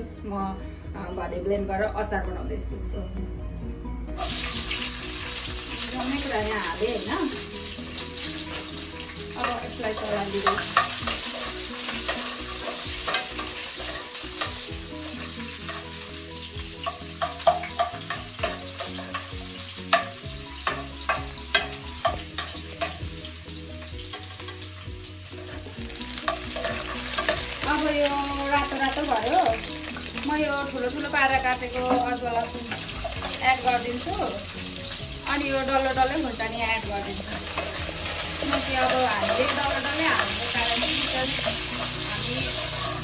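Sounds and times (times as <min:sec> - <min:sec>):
onion sizzling in oil: 0:04.2 - 0:43.0
metal spoon scraping a pan: 0:07.9 - 0:23.0, 0:25.3 - 0:27.9, 0:37.3 - 0:43.0.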